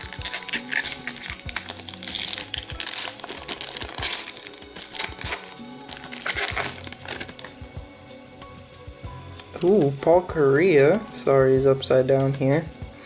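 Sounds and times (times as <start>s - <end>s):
wrapper crinkling: 0.0s - 7.7s
background music with steady beat: 0.0s - 13.0s.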